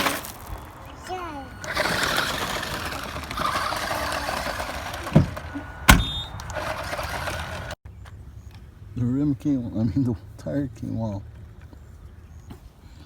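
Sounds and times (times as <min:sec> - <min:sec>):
electric toy car motor whirring: 0:01.1 - 0:07.8.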